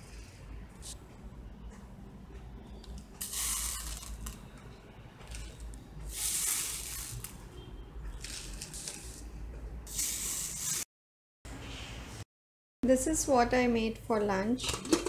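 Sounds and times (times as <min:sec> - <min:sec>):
beans rustling on a steel plate: 0:03.2 - 0:04.4, 0:05.3 - 0:07.4, 0:08.2 - 0:09.3.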